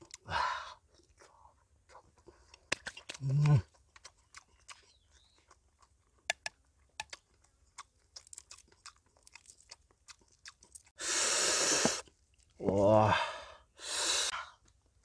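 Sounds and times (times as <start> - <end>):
chewing with wet clicks: 0.9 - 11.0, 12.0 - 12.6, 14.6 - 15.0
lip smacks: 1.9 - 10.9.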